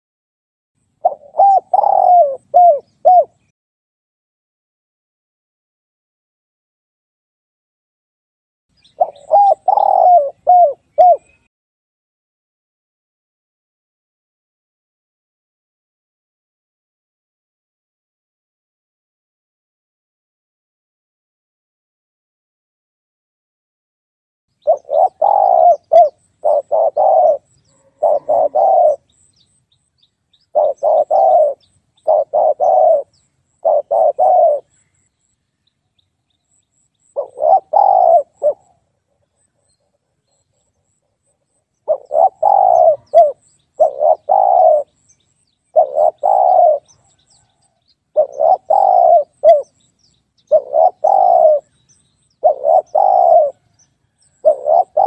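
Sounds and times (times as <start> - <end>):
dove cooing: 1.0 - 3.5, 8.9 - 11.5, 24.6 - 29.3, 30.4 - 34.8, 37.1 - 39.3, 41.8 - 45.0, 45.7 - 49.8, 50.5 - 51.8, 52.4 - 55.0.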